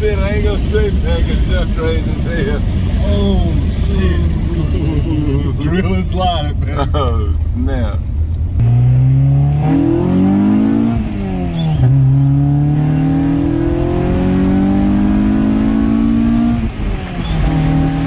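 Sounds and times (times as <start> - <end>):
car engine accelerating: 8.0 - 18.0.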